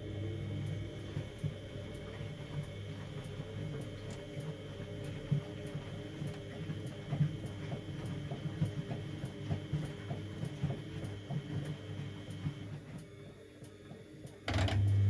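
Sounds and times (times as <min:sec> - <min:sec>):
washing machine motor hum: 0:00.0 - 0:15.0
drum knocking laundry: 0:05.2 - 0:12.8, 0:14.5 - 0:15.0.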